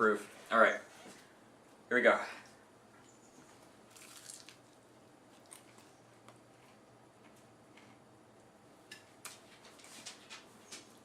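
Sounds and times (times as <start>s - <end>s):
person chewing crispy food: 3.9s - 6.8s.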